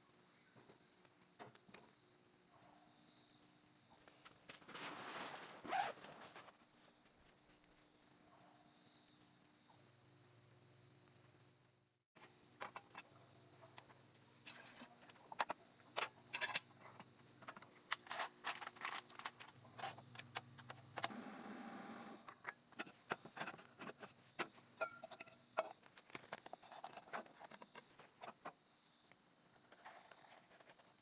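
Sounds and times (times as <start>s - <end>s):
clicks and knocks of small objects: 12.2s - 21.1s, 22.3s - 28.6s.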